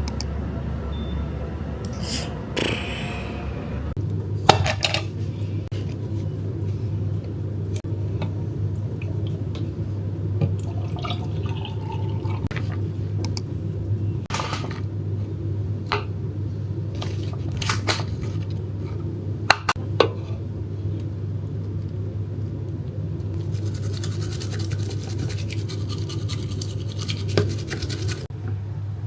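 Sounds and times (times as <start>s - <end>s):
steady low hum: 0.0s - 29.0s
scratchy brushing or scrubbing: 23.4s - 28.3s.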